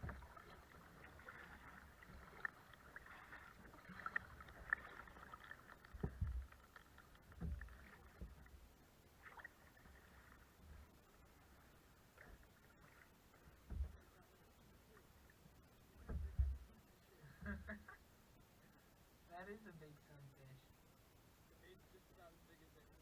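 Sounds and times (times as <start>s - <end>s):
paddle dips and water splashing: 0.0s - 14.2s
low thumps: 5.8s - 6.6s, 7.3s - 8.6s.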